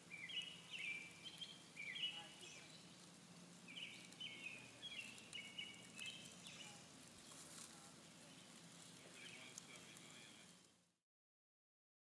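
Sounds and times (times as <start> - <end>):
faint bird song: 0.0 - 11.0
faint low hum: 0.0 - 11.0.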